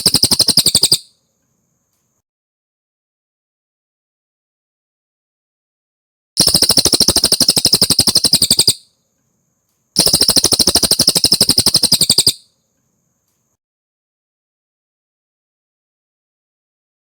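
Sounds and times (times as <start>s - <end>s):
songbird high trill: 0.0s - 1.1s, 6.4s - 8.8s, 10.0s - 12.4s.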